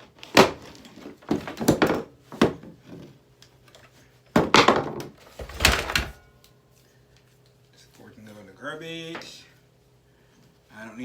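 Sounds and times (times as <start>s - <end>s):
objects knocking and clattering: 4.4s - 6.3s.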